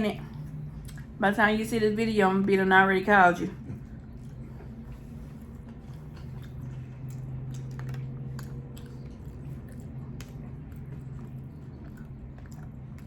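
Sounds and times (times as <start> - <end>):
steady low hum: 0.0 - 13.0
person chewing: 3.6 - 13.0.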